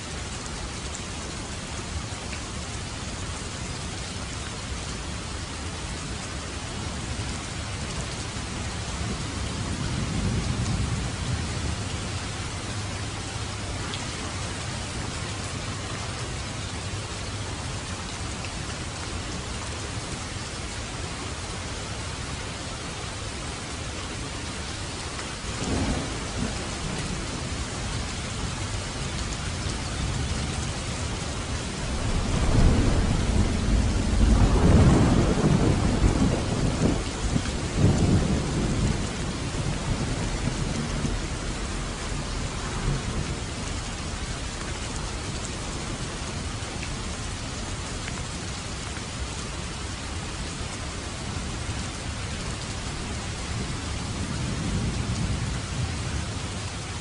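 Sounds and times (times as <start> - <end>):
heavy rain: 0.0 - 57.0
thunder rumbling: 25.6 - 28.6, 29.7 - 44.4.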